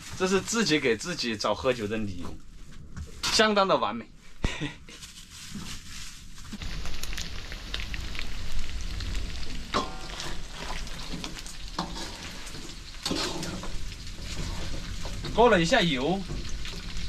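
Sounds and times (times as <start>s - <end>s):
chicken sizzling in hot oil: 5.5s - 17.0s
spatula scraping pan: 9.8s - 17.0s.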